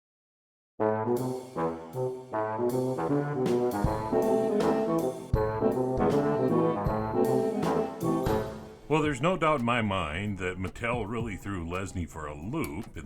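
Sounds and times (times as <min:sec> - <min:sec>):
brass intro music: 0:00.8 - 0:09.7
drum hits: 0:07.6 - 0:09.6.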